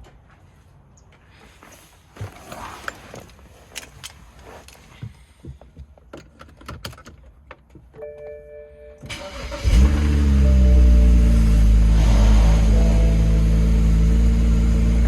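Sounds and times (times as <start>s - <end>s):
car engine cold starting: 9.0s - 15.0s.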